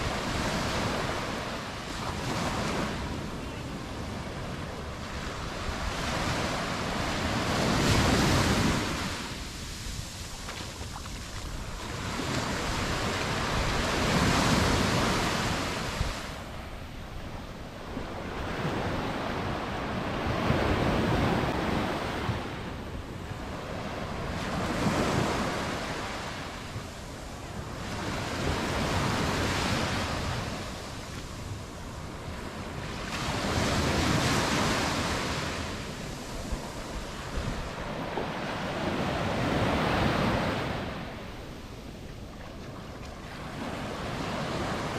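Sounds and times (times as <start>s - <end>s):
surf breaking on beach: 0.0s - 16.6s.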